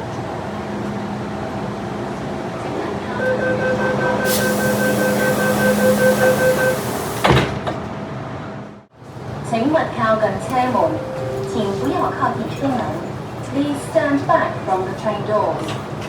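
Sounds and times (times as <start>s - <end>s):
rapid two-tone beeping: 3.2s - 7.2s
hiss: 4.2s - 7.4s
train doors slamming shut: 4.2s - 8.0s.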